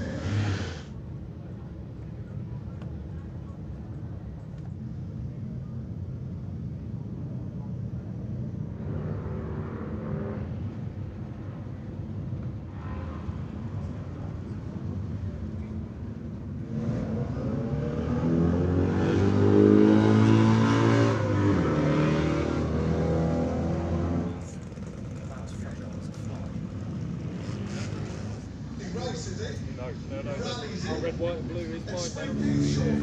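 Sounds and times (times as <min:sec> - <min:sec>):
motorcycle engine revving: 0:00.0 - 0:00.9, 0:16.6 - 0:28.6.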